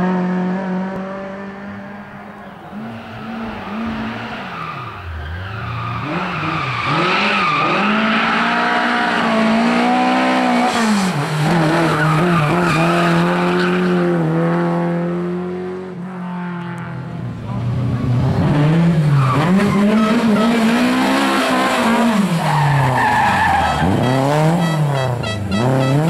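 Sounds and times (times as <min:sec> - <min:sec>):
rally car engine revving hard: 0:00.0 - 0:02.1, 0:05.9 - 0:16.0, 0:18.0 - 0:26.0.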